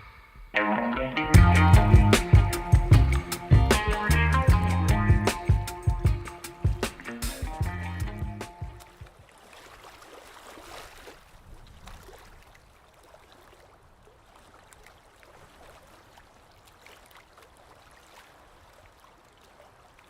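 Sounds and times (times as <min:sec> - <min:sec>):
trickling water: 0:05.9 - 0:20.0
water splashes and drips: 0:08.0 - 0:20.0.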